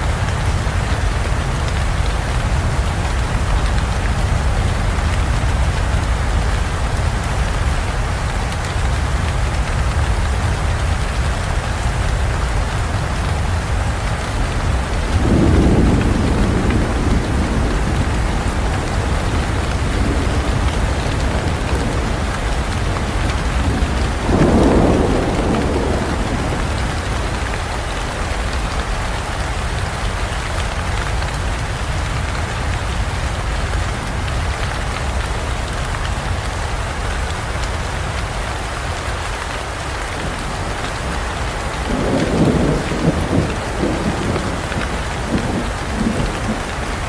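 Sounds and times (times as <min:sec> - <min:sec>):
heavy rain falling: 0:00.0 - 0:47.0
thunder rolling: 0:00.1 - 0:29.4, 0:40.1 - 0:47.0.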